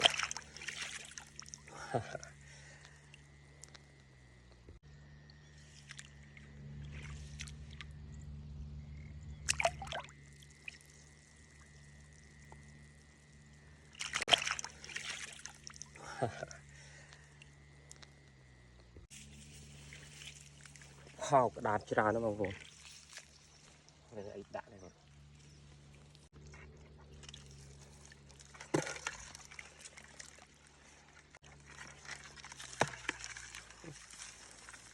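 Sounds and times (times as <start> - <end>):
water splashes: 0.0 - 4.0, 5.5 - 8.1, 9.3 - 17.6, 19.1 - 34.9
low steady hum: 0.0 - 34.9
water trickling and sloshing: 0.0 - 34.9
splash-like knock: 14.0 - 15.3.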